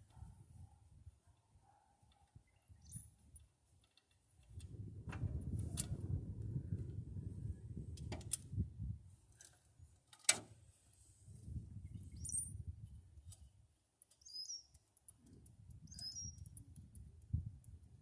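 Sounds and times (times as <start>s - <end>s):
small bird chirping: 2.4s - 3.2s, 11.9s - 12.6s, 14.2s - 14.8s, 15.8s - 16.6s.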